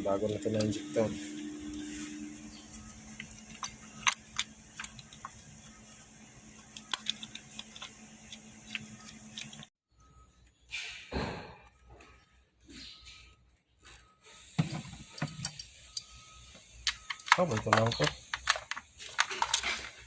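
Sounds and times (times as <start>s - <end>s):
steady low hum: 0.0s - 10.4s
metallic clicks and clinks: 2.8s - 5.7s, 16.8s - 20.0s.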